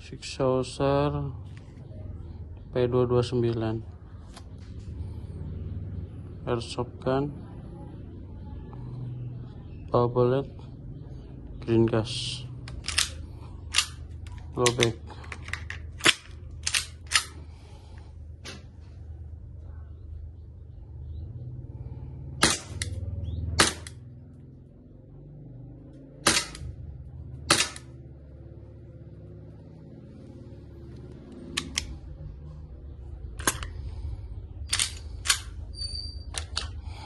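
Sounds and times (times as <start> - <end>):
airsoft pistol shots: 22.4 - 22.9, 23.6 - 24.0, 26.2 - 26.7, 27.5 - 27.9.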